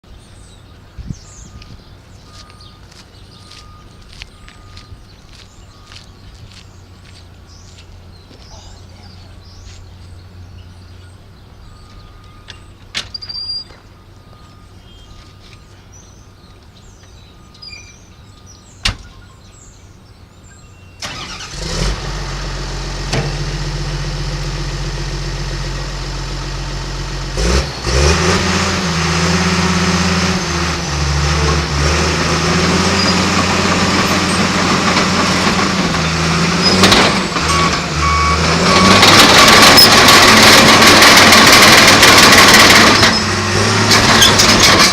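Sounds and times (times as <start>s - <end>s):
diesel engine revving: 21.0s - 44.9s
diesel engine starting and idling: 21.0s - 44.9s.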